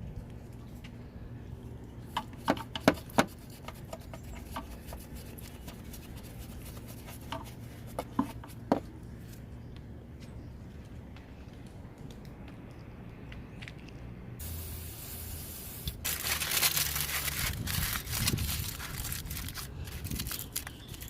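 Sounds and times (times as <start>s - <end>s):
steady low hum: 0.0s - 16.3s.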